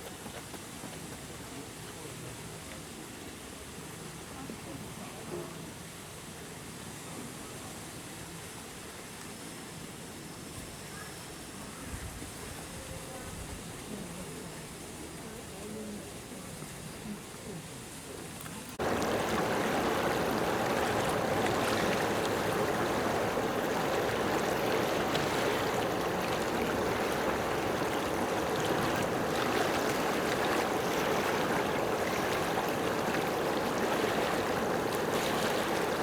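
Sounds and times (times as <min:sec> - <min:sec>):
faint water splashes: 0:16.6 - 0:36.0
running water rushing: 0:18.8 - 0:36.0.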